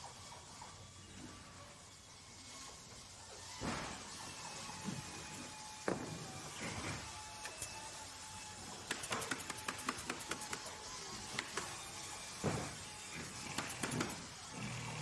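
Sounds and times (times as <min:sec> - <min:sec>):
sharp clicks: 0:08.9 - 0:10.8.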